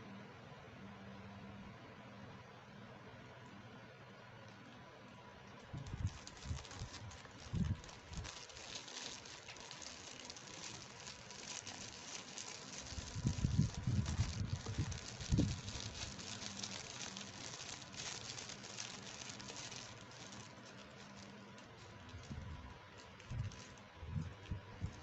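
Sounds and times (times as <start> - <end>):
plastic packaging crinkling: 5.6 - 25.0.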